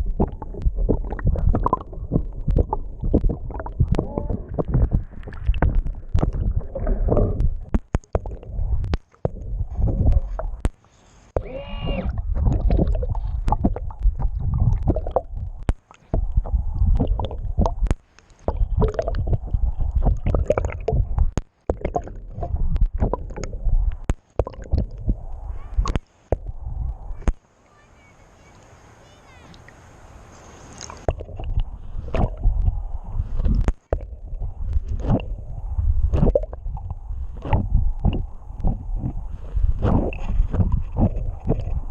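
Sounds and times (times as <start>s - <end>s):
water rushing and gurgling underwater: 0.0s - 27.4s, 30.6s - 41.9s
sharp clicks and knocks: 7.2s - 10.8s.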